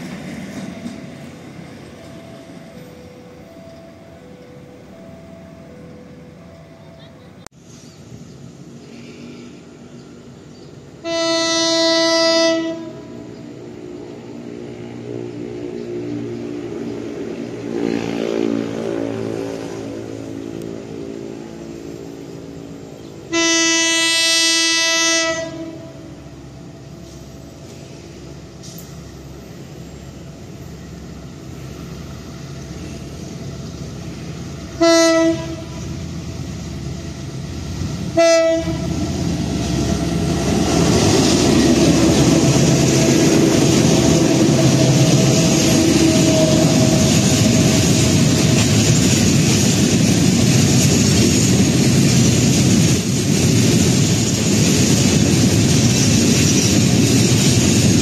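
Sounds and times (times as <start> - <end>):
train horn blasts: 11.0 - 13.3, 17.5 - 22.0, 23.3 - 26.3, 34.7 - 36.0, 38.1 - 39.2, 44.2 - 48.7
locomotive engine running: 25.5 - 58.0.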